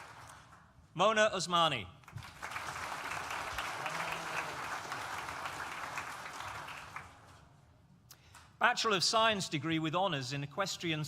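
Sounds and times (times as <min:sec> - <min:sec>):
audience applauding: 0:00.0 - 0:00.6, 0:02.1 - 0:07.4.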